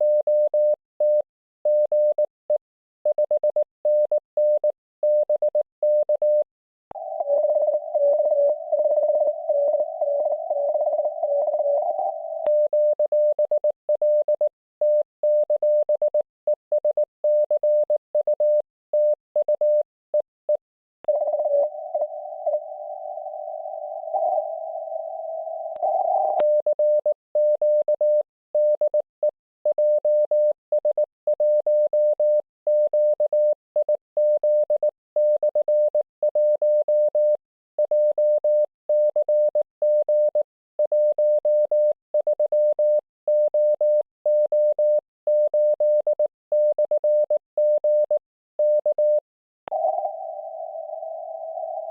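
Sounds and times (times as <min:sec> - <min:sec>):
morse code tone: 0:07.0 - 0:16.2, 0:21.1 - 0:29.0, 0:29.7 - 0:51.9
radio signal with hiss: 0:21.1 - 0:26.4, 0:49.7 - 0:51.9.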